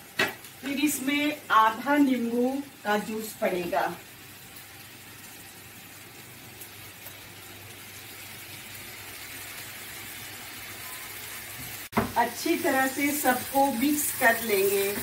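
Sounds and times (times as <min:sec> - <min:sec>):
vegetables sizzling in a frying pan: 0:00.0 - 0:15.0.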